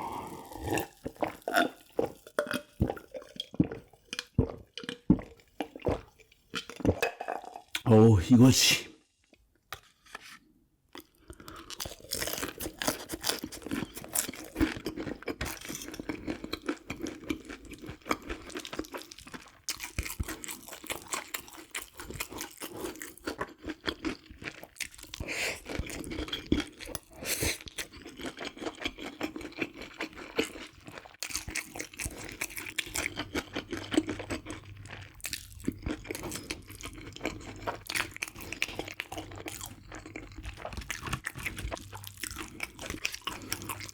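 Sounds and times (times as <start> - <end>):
chewing crisp fried chicken: 0.0 - 6.8, 10.9 - 43.9.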